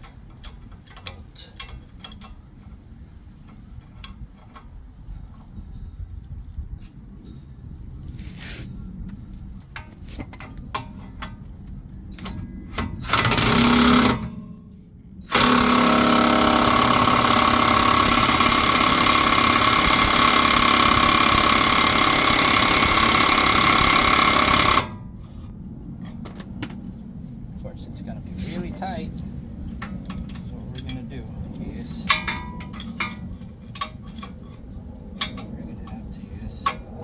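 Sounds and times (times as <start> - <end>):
impact wrench hammering: 13.1 - 14.4, 15.3 - 25.0.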